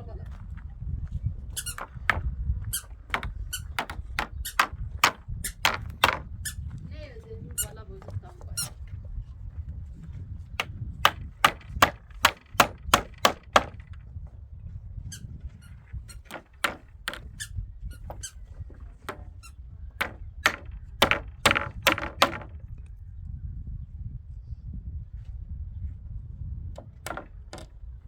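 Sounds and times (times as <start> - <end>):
hammer knocks: 1.6 - 6.3, 10.6 - 14.0, 16.1 - 19.4, 20.0 - 22.6, 26.8 - 27.7.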